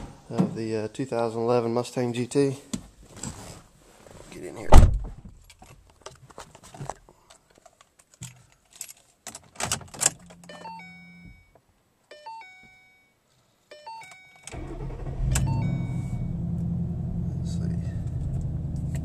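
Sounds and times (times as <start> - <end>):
keys jangling and clicking: 7.3 - 10.6
car warning chime: 10.3 - 16.6
car engine rumbling: 14.5 - 19.0.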